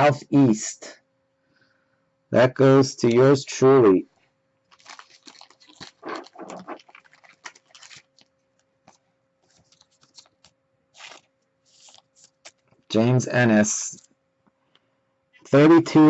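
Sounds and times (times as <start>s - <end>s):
trading cards rustling and clicking: 4.7s - 12.9s.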